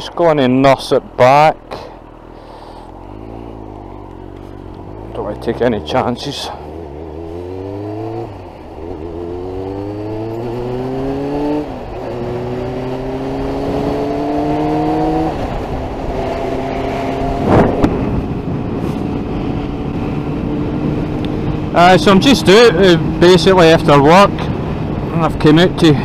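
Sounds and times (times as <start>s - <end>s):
motorcycle engine accelerating: 1.7s - 26.0s
wind rushing: 6.6s - 21.8s
loud rush of noise: 14.4s - 22.0s.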